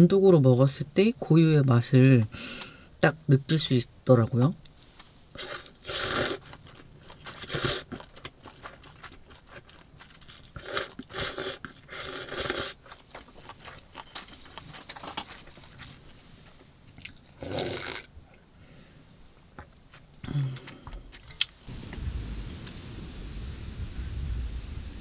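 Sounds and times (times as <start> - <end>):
person chewing noodles: 5.0 - 18.4, 19.6 - 21.6.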